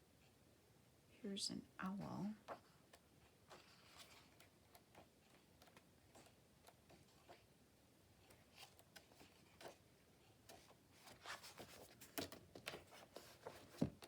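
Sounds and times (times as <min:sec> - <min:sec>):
paper rustling: 0:02.4 - 0:07.5, 0:08.2 - 0:14.0.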